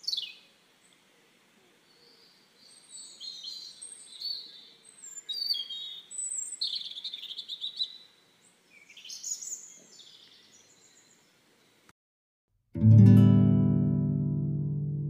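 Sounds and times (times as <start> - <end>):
songbirds chirping and singing: 1.8 - 11.8.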